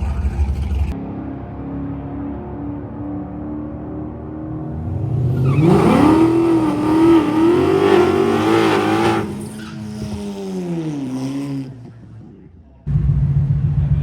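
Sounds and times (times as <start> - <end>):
car engine revving hard: 4.7 - 12.1.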